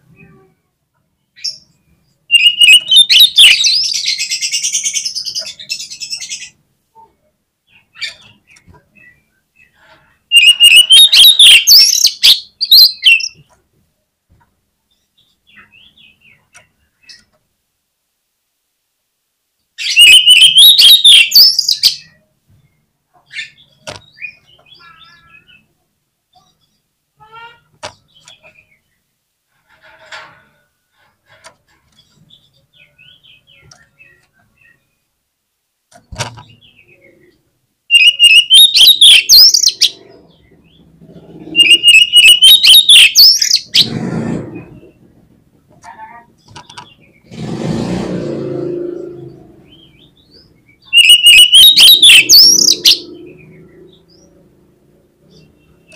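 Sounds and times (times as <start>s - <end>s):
songbird singing clicks and whistles: 2.3s - 4.1s, 10.3s - 13.4s, 19.8s - 22.1s, 37.9s - 40.0s, 41.6s - 43.9s, 46.4s - 47.3s, 50.8s - 53.2s.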